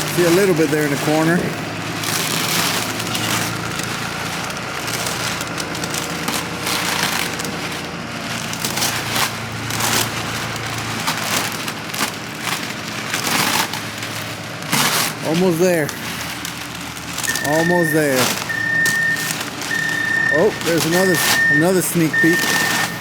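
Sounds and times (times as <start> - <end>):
crackling rustling noise: 0.0 - 23.0
engine running: 0.0 - 23.0.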